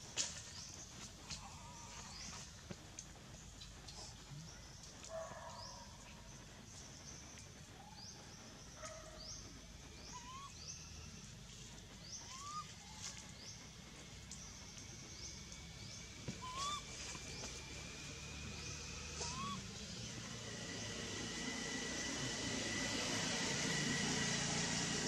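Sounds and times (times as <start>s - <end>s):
lower whistled bird calls: 7.8s - 13.6s, 14.3s - 17.9s, 18.6s - 21.4s
bird high rising chirp: 8.8s - 13.7s, 14.3s - 22.8s.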